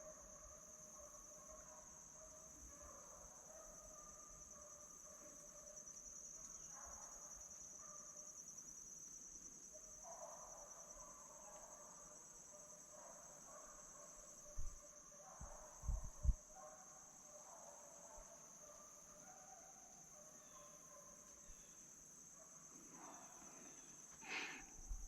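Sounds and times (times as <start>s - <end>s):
distant hounds baying: 9.8s - 24.7s.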